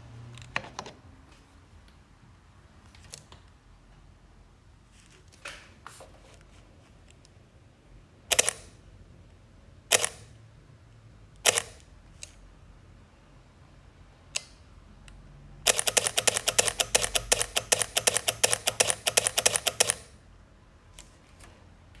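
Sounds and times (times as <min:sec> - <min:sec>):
camera shutter clicks: 0:08.3 - 0:08.8, 0:09.9 - 0:10.3, 0:11.4 - 0:11.8, 0:15.7 - 0:20.1.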